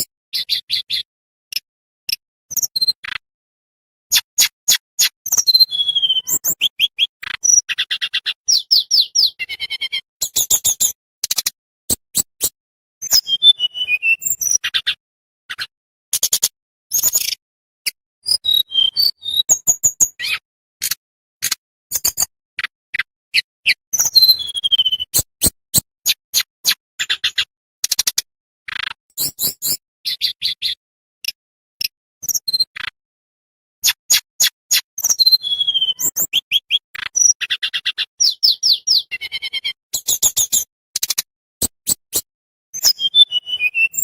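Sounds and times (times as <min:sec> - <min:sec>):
songbird singing: 0:05.3 - 0:10.9, 0:13.0 - 0:14.9, 0:23.4 - 0:25.2, 0:35.1 - 0:40.6.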